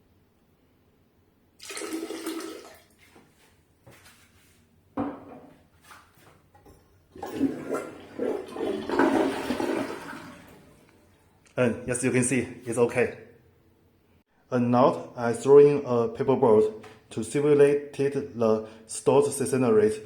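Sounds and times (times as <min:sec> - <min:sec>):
water rushing through toilet bowl: 0:01.6 - 0:03.0, 0:07.1 - 0:11.2
toilet flush click: 0:07.2 - 0:11.0.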